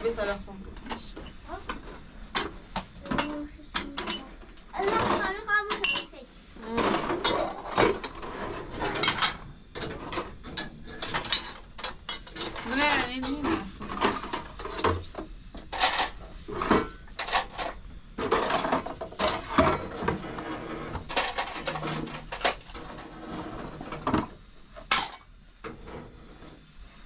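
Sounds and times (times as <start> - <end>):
hard objects knocking and clattering: 0.0 - 26.7.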